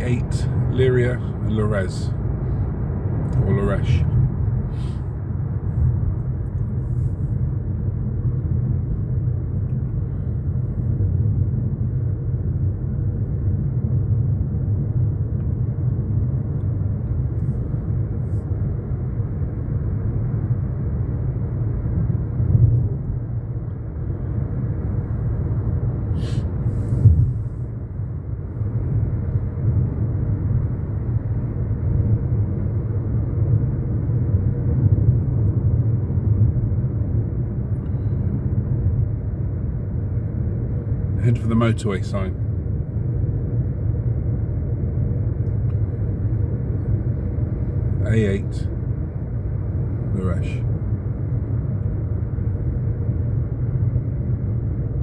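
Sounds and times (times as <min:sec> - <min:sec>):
car cabin road and engine rumble: 0:00.0 - 0:55.0.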